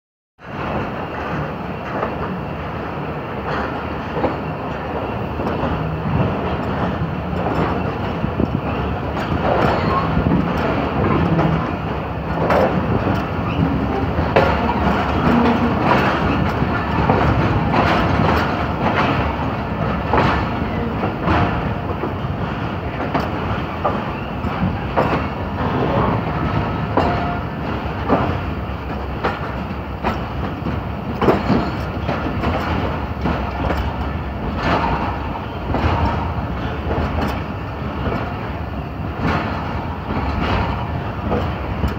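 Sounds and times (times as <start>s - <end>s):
rumble of wheels on rails: 0.4s - 41.9s
wheels clacking over rail joints: 3.4s - 41.9s.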